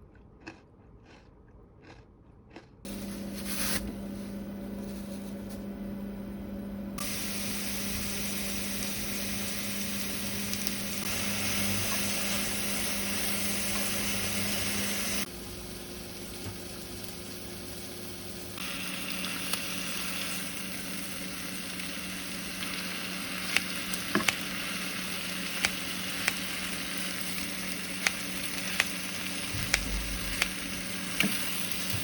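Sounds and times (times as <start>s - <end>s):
food sizzling in frying pan: 2.9s - 6.1s, 7.0s - 32.0s
utensil clicking against pan: 25.6s - 26.5s.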